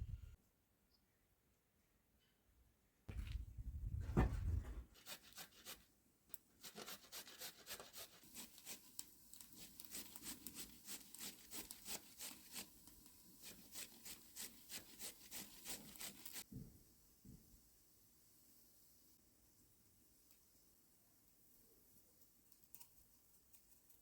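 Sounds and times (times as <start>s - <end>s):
rapid rubbing strokes: 13.4s - 16.4s.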